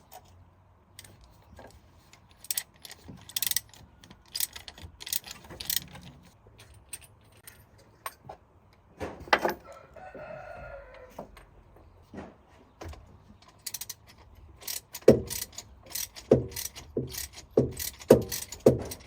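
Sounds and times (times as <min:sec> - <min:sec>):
metal tools clinking and rattling: 0:01.0 - 0:08.3.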